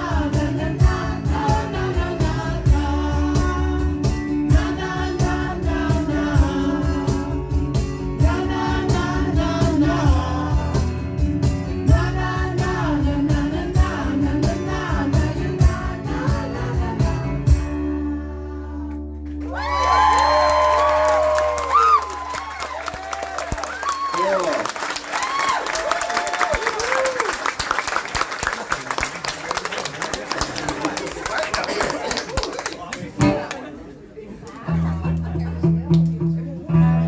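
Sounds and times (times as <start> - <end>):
acoustic rock band playing live: 0.0 - 24.1, 33.1 - 33.8, 34.5 - 37.0
crowd cheering and whooping: 19.4 - 27.8.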